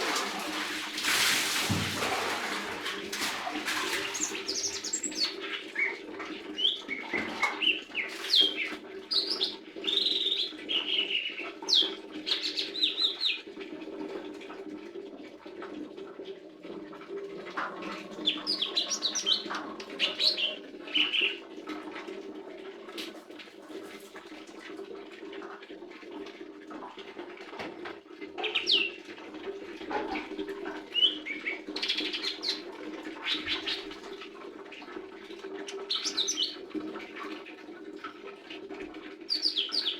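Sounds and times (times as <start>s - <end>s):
bird chirping and whistling: 18.2s - 21.4s, 31.0s - 32.6s.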